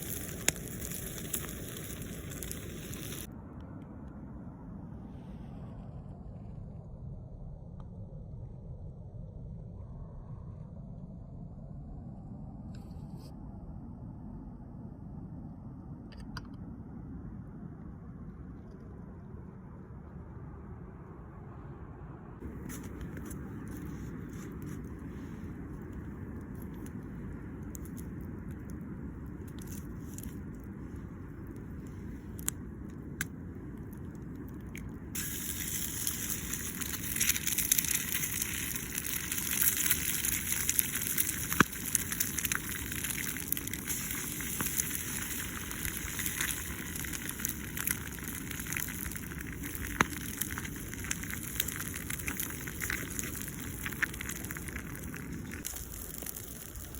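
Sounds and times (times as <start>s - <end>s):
campfire crackling and hissing: 0.0s - 3.3s, 22.4s - 56.9s
sharp pops of fire: 0.0s - 3.3s, 34.4s - 56.9s
steady low rumble: 0.0s - 56.9s.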